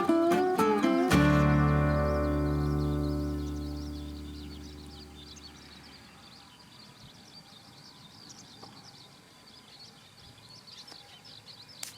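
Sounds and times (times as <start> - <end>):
music track: 0.0 - 5.2
small birds chirping: 0.0 - 11.9.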